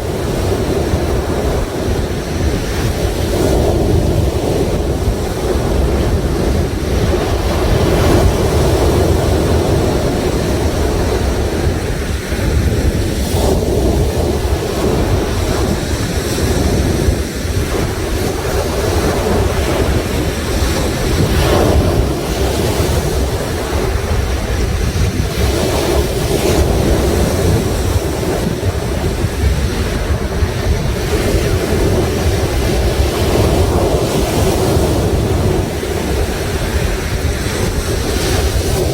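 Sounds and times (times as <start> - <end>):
sea waves washing onto shore: 0.0 - 38.9
wind buffeting microphone: 0.0 - 38.9.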